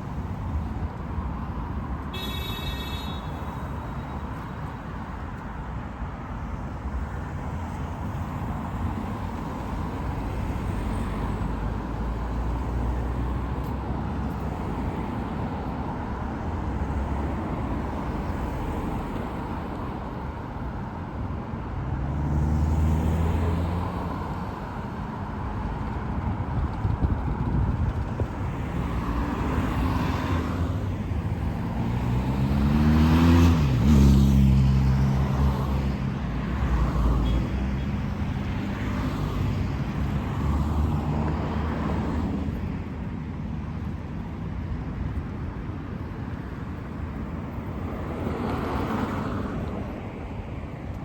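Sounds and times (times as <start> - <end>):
cars passing: 0.0 - 51.0
road rumble: 0.0 - 51.0.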